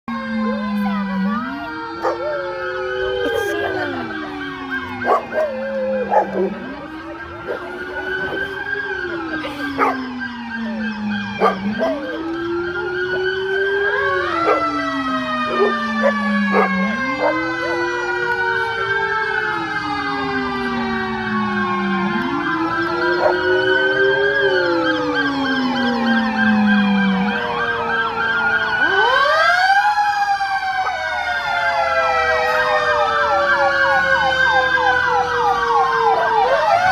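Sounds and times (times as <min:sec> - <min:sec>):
high gliding siren: 0:00.1 - 0:36.9
wailing siren: 0:00.1 - 0:36.9.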